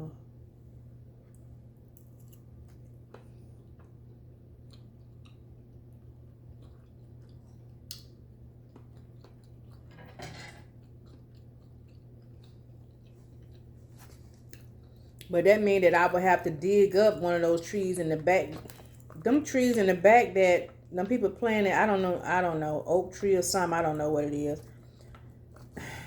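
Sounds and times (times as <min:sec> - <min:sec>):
low steady hum: 0:00.0 - 0:26.0
person chewing food: 0:01.1 - 0:15.3, 0:18.5 - 0:19.3, 0:20.6 - 0:21.0, 0:24.6 - 0:26.0.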